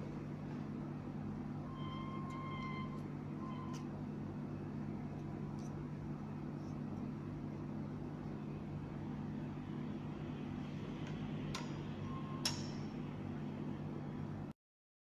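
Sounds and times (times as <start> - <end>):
low mechanical hum: 0.0 - 14.6
short steady tone: 1.6 - 3.9.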